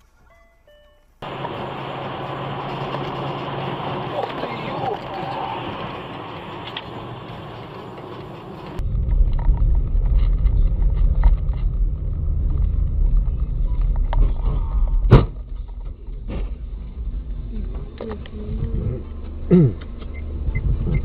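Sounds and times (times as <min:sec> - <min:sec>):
car rumbling on the move: 0:01.2 - 0:21.0
loud sharp impact: 0:08.8 - 0:16.8.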